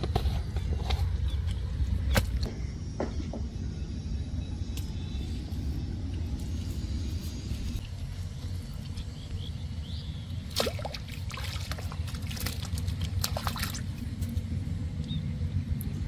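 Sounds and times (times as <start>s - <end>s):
steady low rumble: 0.0s - 16.0s
water splashing and trickling: 10.4s - 14.5s.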